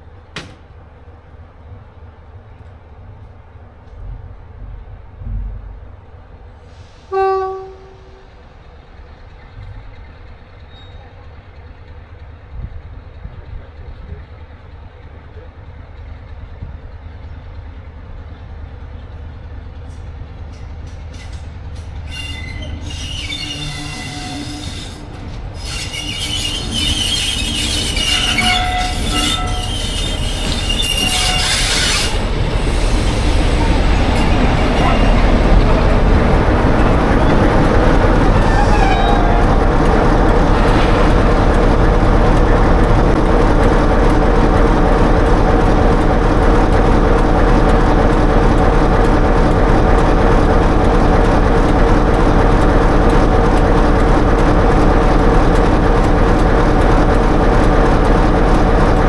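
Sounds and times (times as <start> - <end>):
train rumble: 0.0 - 59.0
train horn blast: 7.0 - 8.3, 28.0 - 30.0, 30.7 - 32.2, 38.2 - 41.8
high ringing wheel squeal: 22.1 - 35.6.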